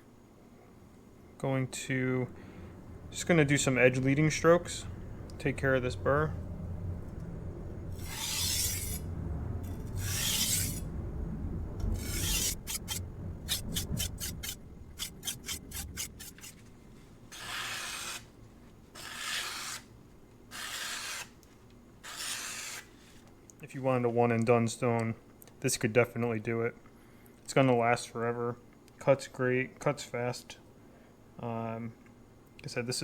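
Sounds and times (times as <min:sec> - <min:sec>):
knife scraping on whetstone: 0:07.9 - 0:09.0, 0:09.7 - 0:10.9, 0:11.9 - 0:16.6, 0:17.3 - 0:18.3, 0:19.0 - 0:19.9, 0:20.5 - 0:21.4, 0:22.0 - 0:23.2.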